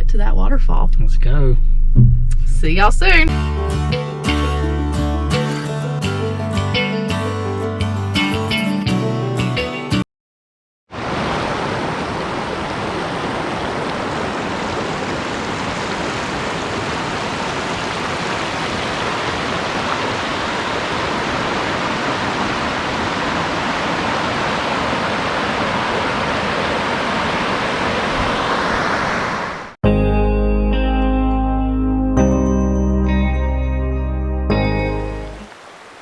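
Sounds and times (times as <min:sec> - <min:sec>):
acoustic guitar music: 0:03.3 - 0:10.0, 0:29.9 - 0:35.4
waterfall rushing: 0:10.9 - 0:29.8, 0:35.4 - 0:36.0.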